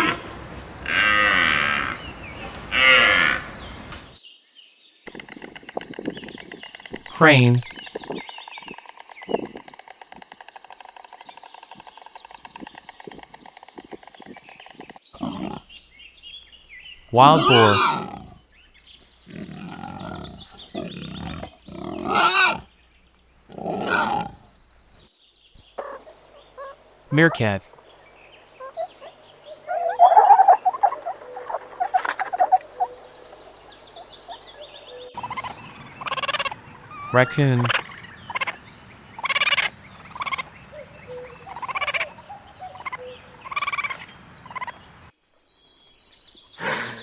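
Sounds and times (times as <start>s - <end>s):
raccoon trilling: 0.0s - 4.2s, 15.2s - 15.8s, 16.9s - 18.4s, 19.1s - 22.7s, 23.4s - 25.0s
wild boar grunting and squealing: 0.0s - 4.2s, 15.2s - 15.8s, 17.1s - 18.4s, 19.2s - 22.7s, 23.4s - 24.6s
faint birds chirping: 0.0s - 9.6s, 10.9s - 47.0s
raccoon chirps and squeaks: 17.4s - 18.4s, 19.3s - 22.6s.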